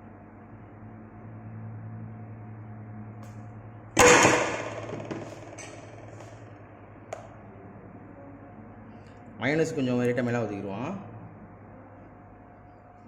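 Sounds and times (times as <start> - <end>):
low steady hum: 0.0 - 13.0
loud sharp knock: 4.0 - 6.4.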